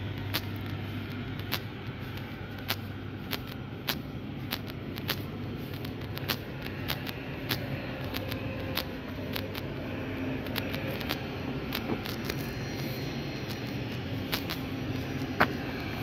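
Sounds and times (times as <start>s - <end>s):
electric train humming: 0.0s - 16.0s
station noise: 0.0s - 16.0s.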